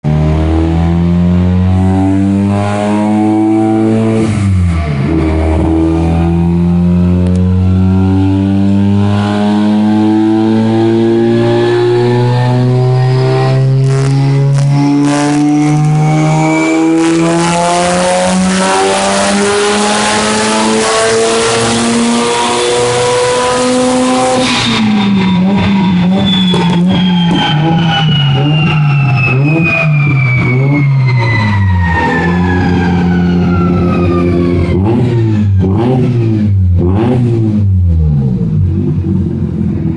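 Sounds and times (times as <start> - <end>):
rotary engine revving: 0.1 - 39.9.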